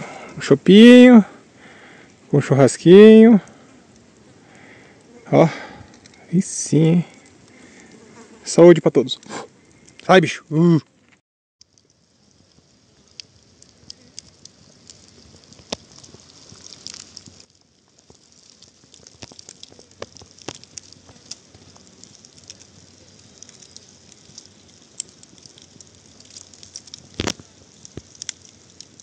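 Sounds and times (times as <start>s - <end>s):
campfire crackling and popping: 0.0s - 29.0s.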